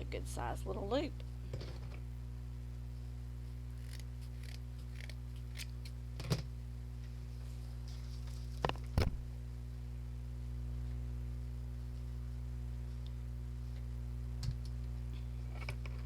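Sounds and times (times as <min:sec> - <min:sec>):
low electrical hum: 0:00.0 - 0:16.0
scissors clicking: 0:03.8 - 0:05.7.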